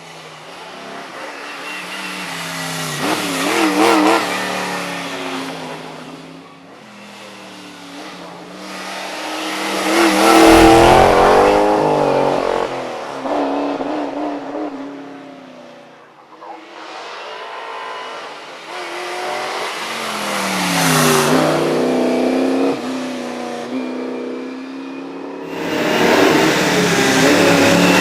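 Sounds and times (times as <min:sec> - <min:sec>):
race cars accelerating past: 0:07.0 - 0:15.3, 0:25.4 - 0:28.0.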